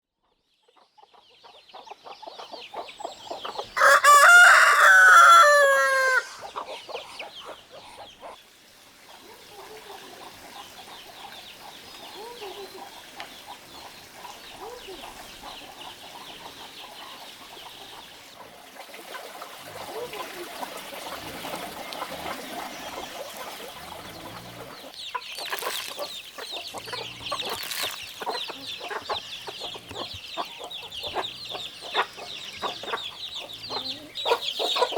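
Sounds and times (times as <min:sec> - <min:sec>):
chickens clucking: 0:00.7 - 0:08.4, 0:09.1 - 0:34.9
rooster crowing: 0:03.8 - 0:06.5.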